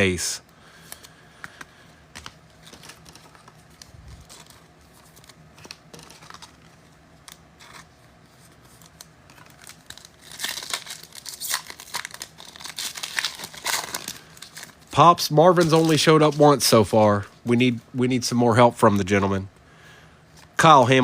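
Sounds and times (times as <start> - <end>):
plastic wrapper tearing and crinkling: 8.7 - 16.7.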